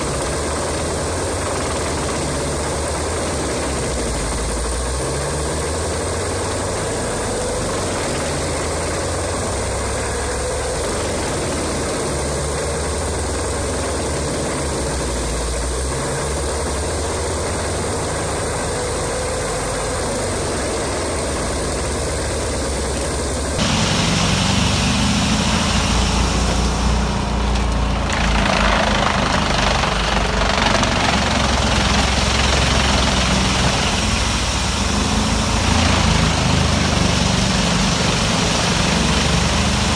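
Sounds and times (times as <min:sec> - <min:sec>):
wood chipper diesel engine running: 0:00.0 - 0:39.9
loud rushing hiss: 0:23.6 - 0:39.9.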